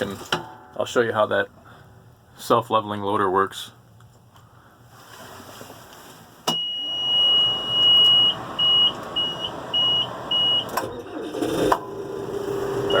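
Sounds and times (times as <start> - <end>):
diesel engine cranking clicks: 8.0 - 13.0
warning beeper tones: 12.8 - 13.0.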